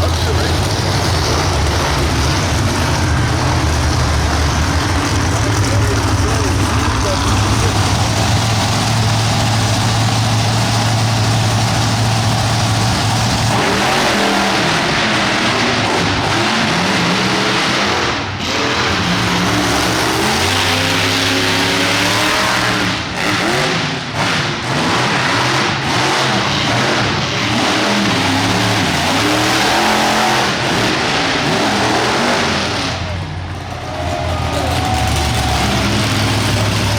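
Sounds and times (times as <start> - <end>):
truck engine revving: 0.0 - 36.9.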